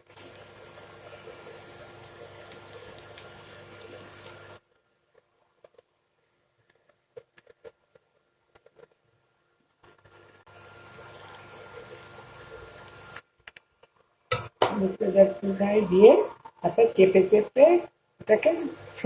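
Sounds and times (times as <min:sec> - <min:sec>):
pan hissing: 0:10.4 - 0:13.2.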